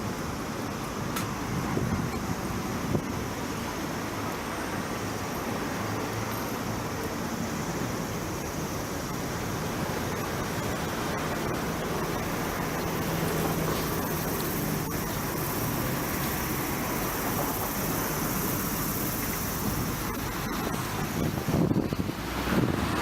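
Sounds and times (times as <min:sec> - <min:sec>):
road traffic: 0:00.0 - 0:23.0.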